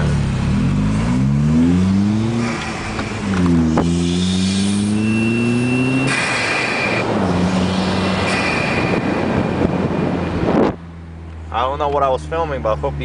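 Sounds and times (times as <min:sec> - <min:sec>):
car engine accelerating: 0:00.0 - 0:13.0
exhaust pop: 0:02.1 - 0:11.4.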